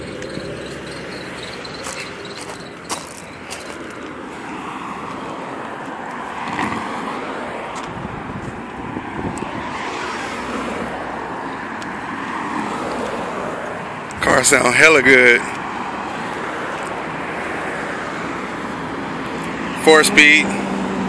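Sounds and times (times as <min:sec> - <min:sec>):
car driving off: 0:00.0 - 0:14.9.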